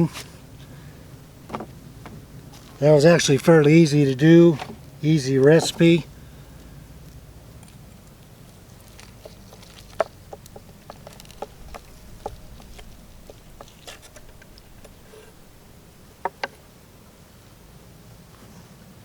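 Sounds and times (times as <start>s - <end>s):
low hiss: 0.0s - 19.0s
light clicks and taps: 7.1s - 16.6s.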